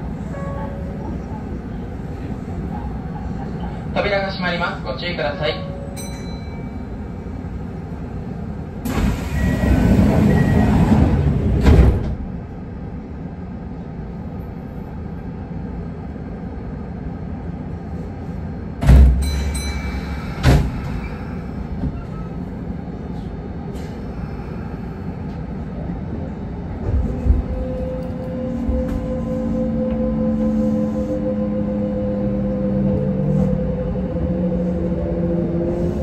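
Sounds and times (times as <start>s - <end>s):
low hum of stopped train: 0.0s - 36.0s
train doors sliding shut: 8.8s - 12.5s, 18.8s - 22.4s.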